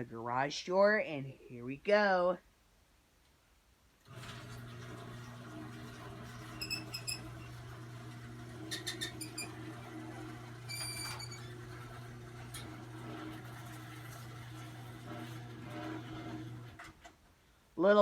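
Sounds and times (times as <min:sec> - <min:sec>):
garage door opener humming: 0:04.0 - 0:17.1
garage door squeaks: 0:05.7 - 0:13.4, 0:15.0 - 0:16.8.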